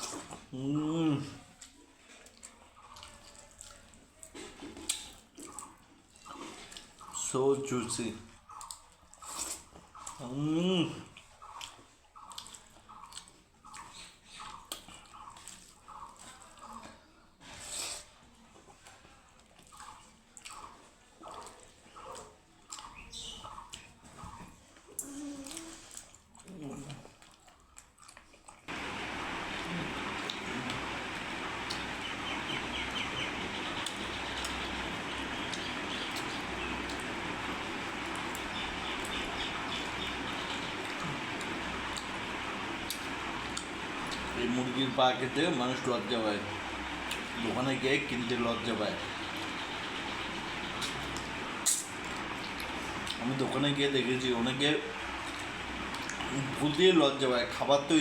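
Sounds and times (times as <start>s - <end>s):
wet chewing and lip-smacking: 1.4s - 7.4s, 8.3s - 10.4s, 11.1s - 17.0s, 17.6s - 44.4s, 46.6s - 47.4s, 49.1s - 53.2s, 55.0s - 56.3s
small birds chirping: 11.4s - 17.4s, 19.7s - 25.7s, 28.7s - 58.0s
steady background noise: 28.7s - 58.0s.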